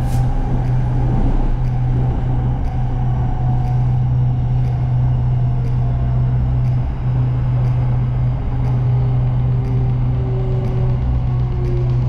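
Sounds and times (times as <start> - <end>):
train cabin rumble and hum: 0.0 - 12.0
faint tick: 0.6 - 0.9, 1.6 - 1.8, 2.6 - 2.8, 3.6 - 4.0, 4.6 - 4.8, 5.6 - 5.8, 6.6 - 6.8, 7.6 - 7.9, 8.6 - 10.0, 10.6 - 12.0.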